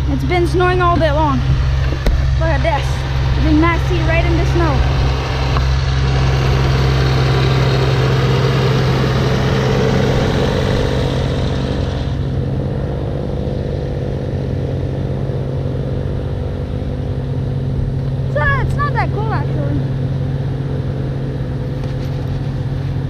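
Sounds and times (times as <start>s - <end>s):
snowblower engine running: 0.0s - 23.0s.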